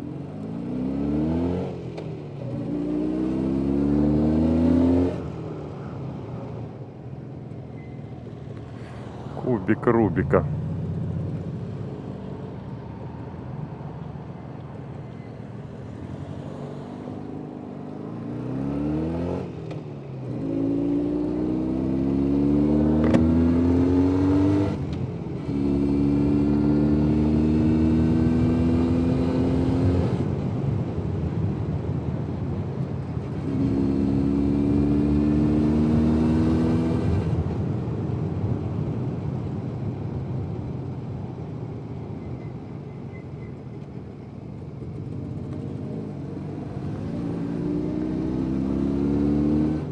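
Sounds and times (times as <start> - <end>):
motorcycle engine accelerating: 0.0 - 5.4, 20.2 - 30.3, 33.3 - 37.6, 44.9 - 49.9.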